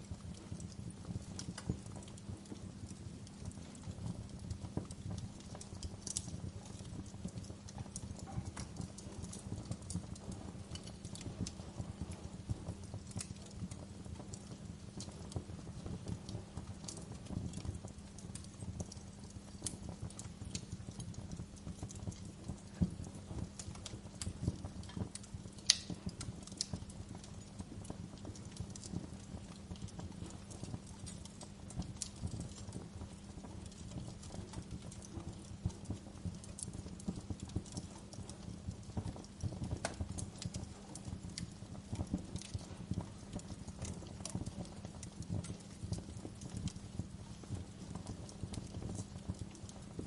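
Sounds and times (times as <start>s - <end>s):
wood fire crackling: 0.0s - 50.0s.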